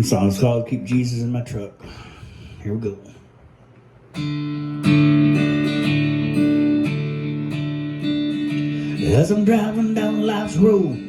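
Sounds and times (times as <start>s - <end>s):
acoustic guitar strumming chords: 4.1s - 11.0s.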